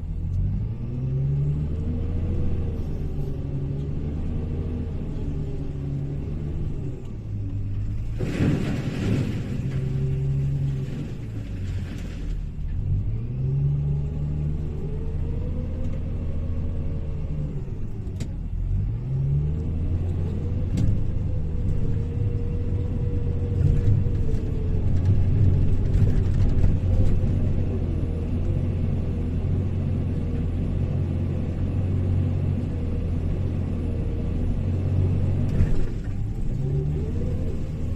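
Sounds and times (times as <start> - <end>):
diesel engine revving: 0.0 - 37.9.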